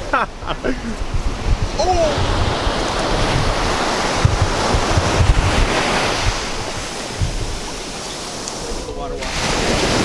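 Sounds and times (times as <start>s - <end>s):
ocean surf washing up beach: 0.0s - 10.0s
wind buffeting microphone: 0.0s - 10.0s.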